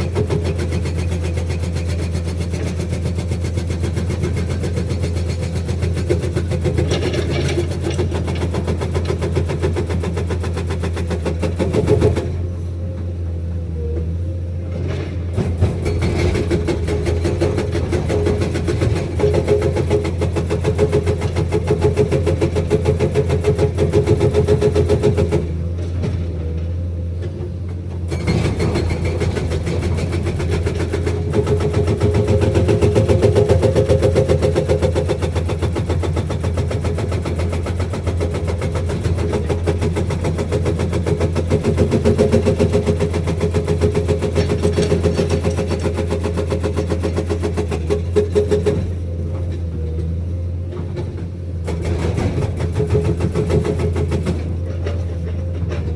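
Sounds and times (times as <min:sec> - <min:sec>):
diesel engine under load: 0:00.0 - 0:55.9
hydraulic breaker hammering: 0:28.1 - 0:49.0.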